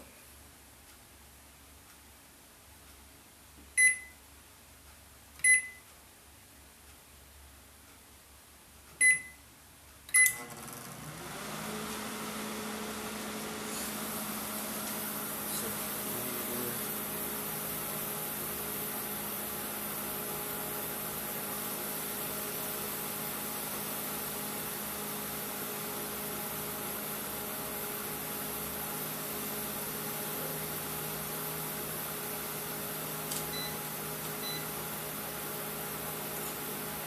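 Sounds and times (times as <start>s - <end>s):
short beeps: 3.8s - 4.2s, 5.4s - 5.9s, 9.0s - 9.4s, 33.5s - 33.8s, 34.4s - 34.7s
microwave oven hum and fan: 10.1s - 37.0s.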